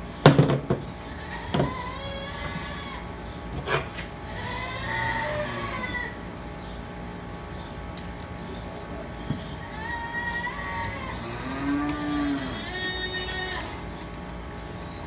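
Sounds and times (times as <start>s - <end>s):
cattle mooing: 1.1s - 6.2s, 9.3s - 14.1s.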